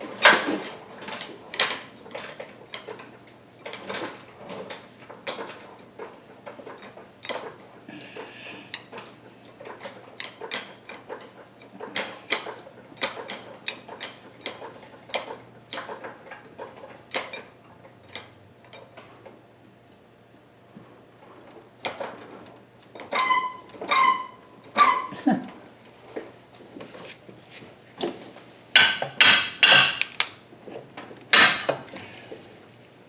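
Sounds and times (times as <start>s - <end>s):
hand tools clicking on metal: 28.8s - 30.4s.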